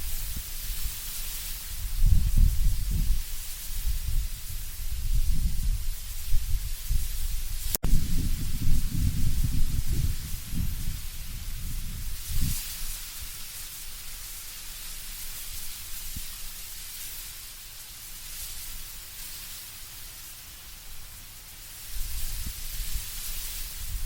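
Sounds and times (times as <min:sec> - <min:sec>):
deep wind gusts: 0:00.0 - 0:13.4
leaves rustling in wind: 0:00.0 - 0:24.0.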